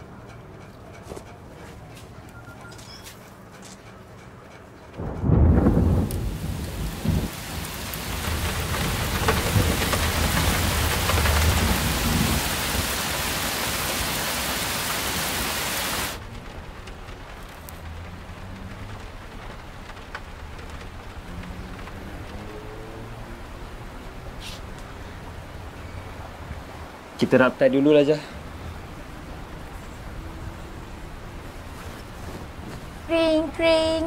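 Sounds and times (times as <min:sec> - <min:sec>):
thunder rumbling: 0:05.0 - 0:24.4
heavy rain: 0:05.0 - 0:34.0.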